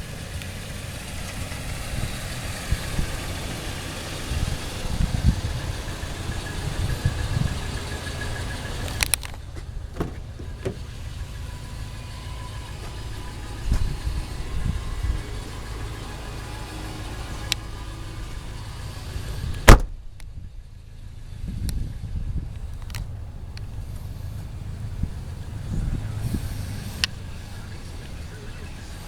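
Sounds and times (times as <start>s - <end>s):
pickup engine idling: 0.0s - 29.0s
sharp bang: 19.7s - 20.0s.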